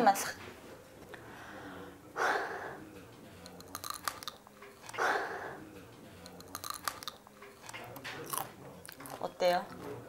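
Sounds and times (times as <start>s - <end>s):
crisp crunches of chewing pepper: 3.5s - 5.0s, 6.2s - 9.2s.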